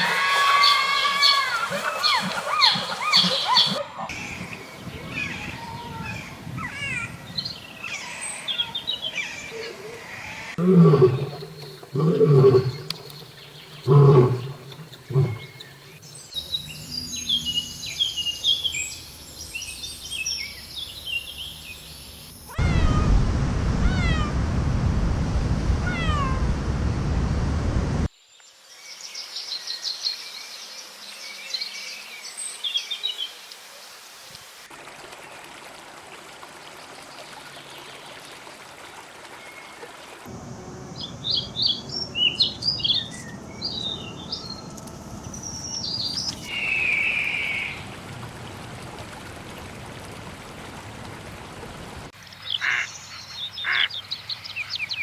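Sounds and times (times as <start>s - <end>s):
faint hiss: 4.2s - 34.7s
loud low animal call: 10.5s - 15.6s, 22.5s - 28.1s
loud rushing noise: 22.6s - 28.1s
birds chirping and calling: 25.9s - 26.4s, 40.3s - 47.9s.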